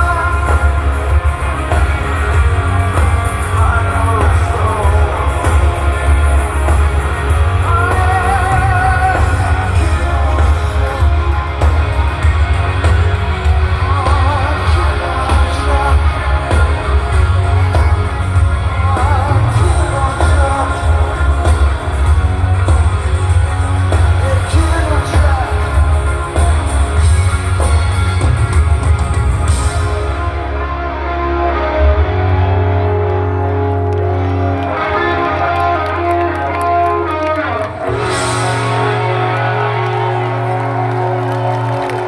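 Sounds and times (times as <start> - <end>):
lead singer singing: 0.0 - 28.3
rock band playing live: 0.0 - 42.0.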